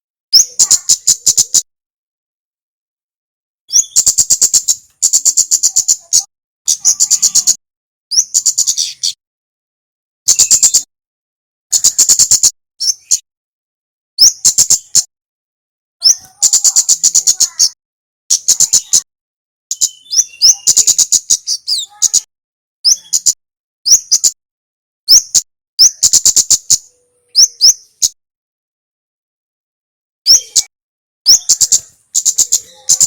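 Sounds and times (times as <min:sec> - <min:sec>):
songbird singing chattering notes: 0:00.4 - 0:01.7, 0:03.7 - 0:09.2, 0:10.3 - 0:10.9, 0:11.7 - 0:13.3, 0:14.2 - 0:15.1, 0:16.0 - 0:19.1, 0:19.7 - 0:24.4, 0:25.1 - 0:28.2, 0:30.3 - 0:30.7, 0:31.3 - 0:33.0.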